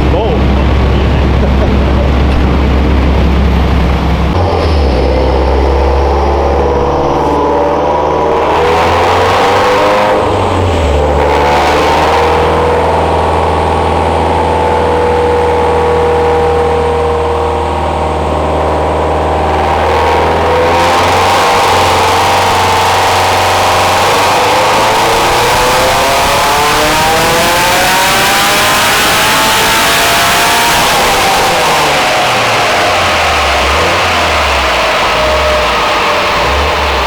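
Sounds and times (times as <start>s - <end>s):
rush of noise: 0.0s - 16.6s
car engine running hard: 0.0s - 37.0s.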